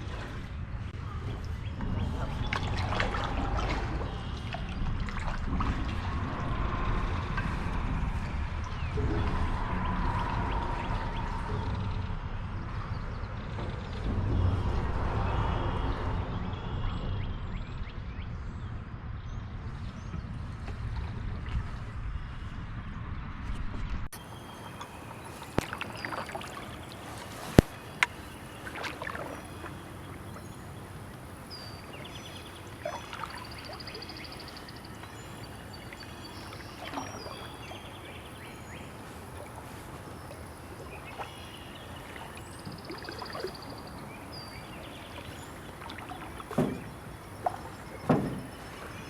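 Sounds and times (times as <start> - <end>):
paddle strokes splashing: 0.0 - 17.0, 24.2 - 49.0
birds chirping and trilling: 0.0 - 20.7, 24.2 - 49.0
moving water: 0.0 - 23.2, 24.0 - 49.0
paddle knocking on hull: 45.7 - 49.0.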